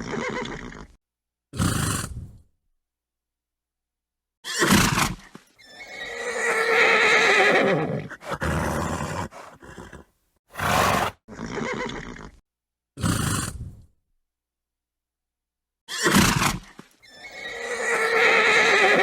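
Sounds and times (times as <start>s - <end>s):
horse whinnying: 4.4s - 12.4s, 15.9s - 19.0s
horse snorting: 7.9s - 11.5s.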